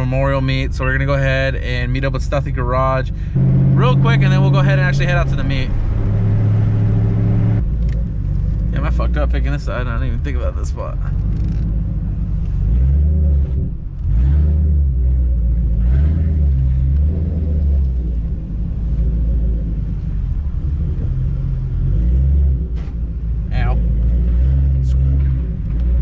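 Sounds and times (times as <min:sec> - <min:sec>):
car engine rumbling: 0:00.0 - 0:26.0.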